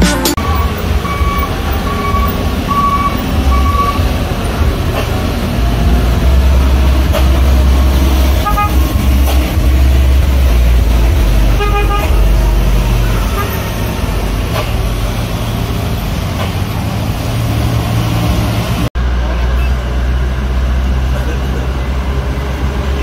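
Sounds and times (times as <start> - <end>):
truck horn toots: 0.0 - 4.4, 6.4 - 15.6
truck diesel engine rumbling: 0.0 - 23.0.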